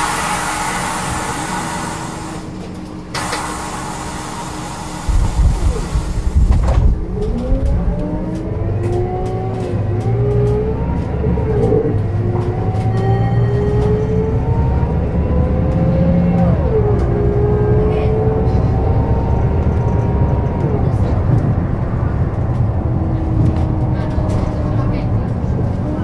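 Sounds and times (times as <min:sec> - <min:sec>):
compressed air hissing: 0:00.0 - 0:02.5, 0:03.2 - 0:06.5
bus diesel engine pulling away: 0:00.0 - 0:26.0.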